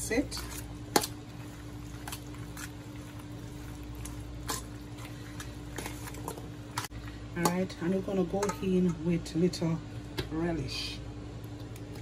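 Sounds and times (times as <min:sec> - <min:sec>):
spoon mixing pasta in a bowl: 0:00.0 - 0:09.2
steady background hum: 0:00.0 - 0:12.0.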